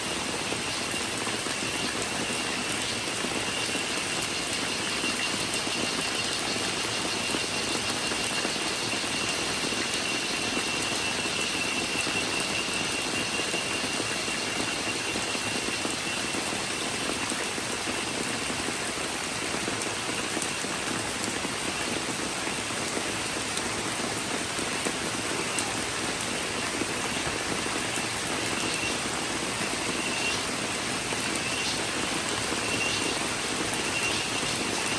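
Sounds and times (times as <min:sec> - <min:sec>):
high cicada drone: 0:00.0 - 0:34.9
steady rain falling: 0:00.0 - 0:34.9.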